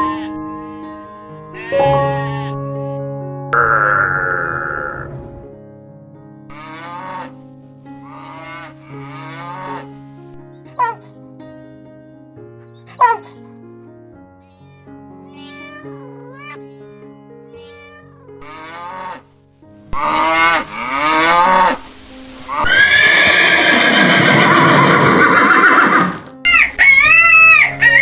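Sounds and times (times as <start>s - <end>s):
background music: 0.0s - 28.0s
animal calls: 3.6s - 5.4s, 8.0s - 9.9s, 12.9s - 13.5s, 20.0s - 28.0s.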